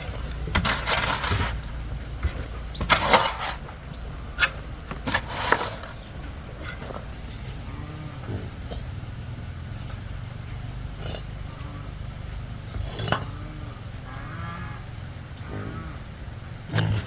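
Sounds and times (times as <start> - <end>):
farm animals calling: 0.0 - 17.0
low hum: 6.0 - 17.0.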